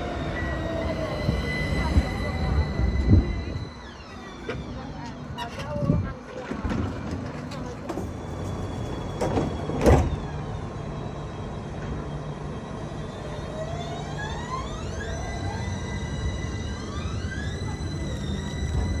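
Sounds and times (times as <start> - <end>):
electric motors whining: 0.0 - 5.3, 12.2 - 19.0.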